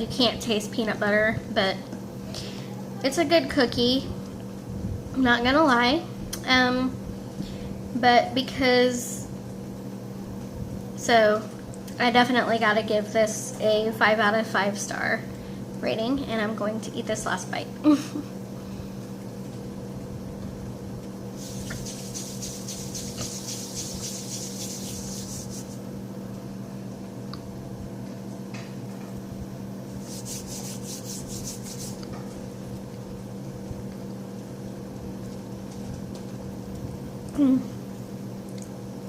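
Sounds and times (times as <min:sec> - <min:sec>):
low electrical hum: 0:00.0 - 0:39.0
dry rustling and rubbing: 0:21.4 - 0:25.8, 0:30.0 - 0:32.0.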